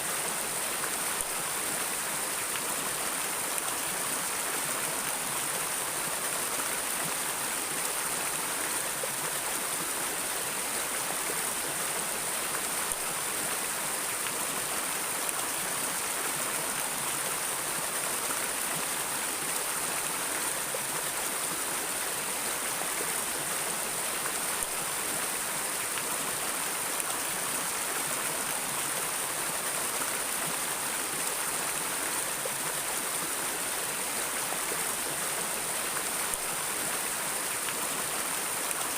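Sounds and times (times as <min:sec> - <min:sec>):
water flowing over rocks: 0:00.0 - 0:38.9.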